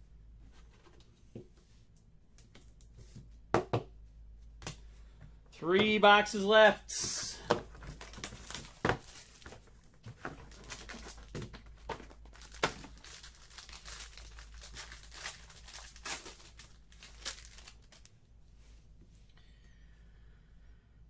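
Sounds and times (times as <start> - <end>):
plastic wrapping crinkling and tearing: 7.8 - 18.1.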